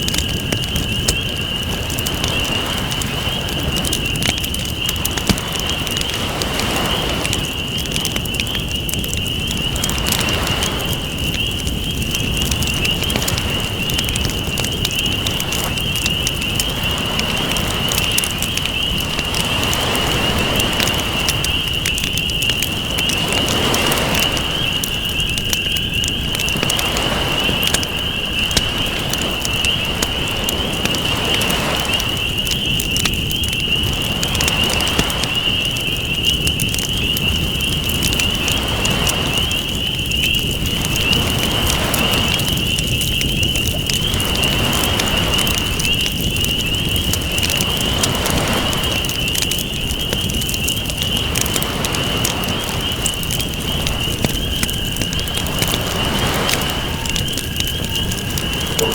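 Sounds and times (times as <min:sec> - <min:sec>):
campfire crackling: 0:00.0 - 0:58.9
ocean waves washing in: 0:55.1 - 0:58.9.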